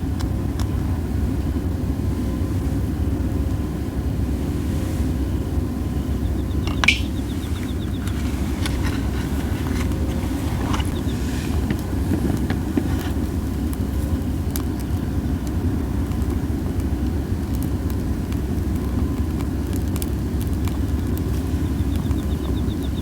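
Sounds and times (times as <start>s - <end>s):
hissing of burning wood: 0.0s - 23.0s
strong wind rumbling: 0.0s - 23.0s
campfire crackling and popping: 5.6s - 23.0s.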